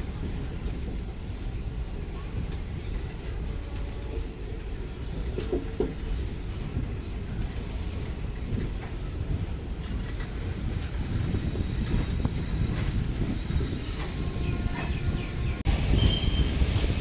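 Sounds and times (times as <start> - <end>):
train wheels rumbling on rails: 0.0 - 17.0
faint high wheel squeal: 10.0 - 16.6.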